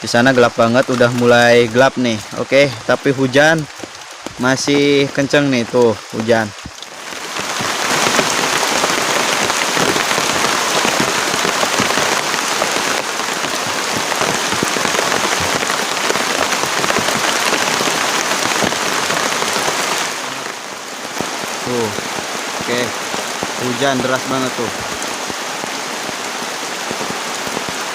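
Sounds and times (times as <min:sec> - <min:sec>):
heavy rain pouring: 0:00.0 - 0:27.9.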